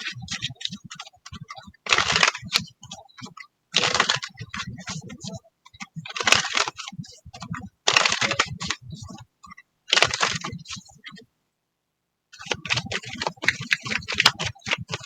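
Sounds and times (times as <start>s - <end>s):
cards rustling as shuffled: 1.9s - 2.4s, 3.8s - 4.3s, 7.9s - 8.7s, 10.0s - 10.5s.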